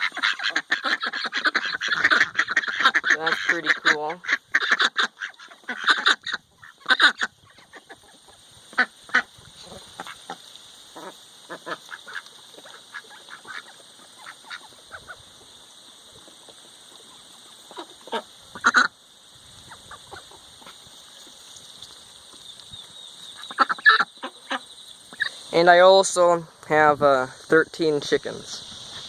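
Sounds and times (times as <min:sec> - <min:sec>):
ducks quacking: 0:00.0 - 0:15.4, 0:16.1 - 0:19.0, 0:19.6 - 0:21.3, 0:23.3 - 0:25.7.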